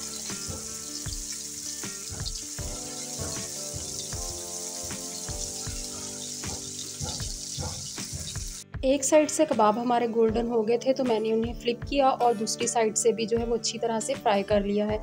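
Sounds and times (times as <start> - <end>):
hot oil sizzling in a frying pan: 0.0 - 8.6.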